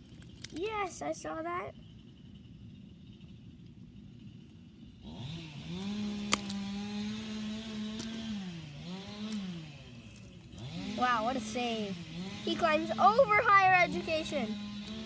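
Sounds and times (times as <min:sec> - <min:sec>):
engine-like revving drone: 0:05.0 - 0:15.0
sharp click: 0:06.3 - 0:06.6.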